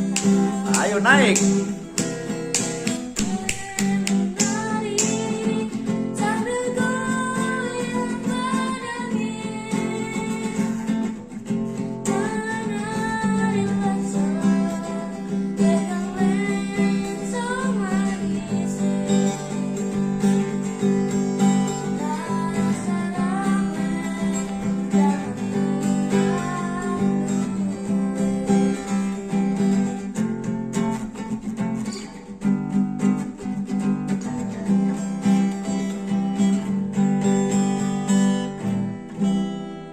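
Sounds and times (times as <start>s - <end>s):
person singing folk song: 0.0s - 30.0s
acoustic guitar strumming: 0.0s - 39.9s.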